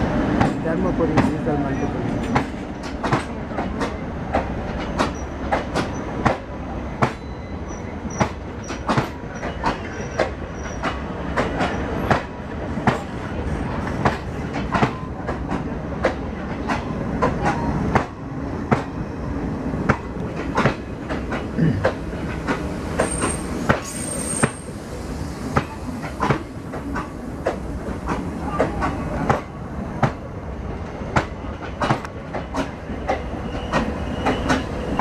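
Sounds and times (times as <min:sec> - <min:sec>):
train rumble: 0:00.0 - 0:35.0
wheels clacking over rail joints: 0:00.4 - 0:19.0, 0:25.5 - 0:35.0
high wheel squeal: 0:07.1 - 0:08.4, 0:23.0 - 0:24.8, 0:33.1 - 0:35.0.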